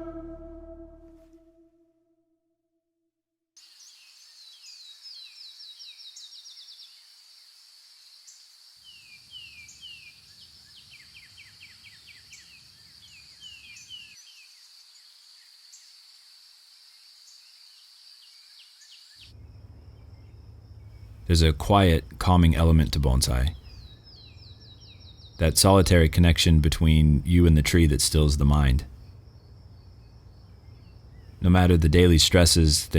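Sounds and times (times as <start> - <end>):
low rumble: 0.0 - 1.2
birds chirping: 18.4 - 32.9.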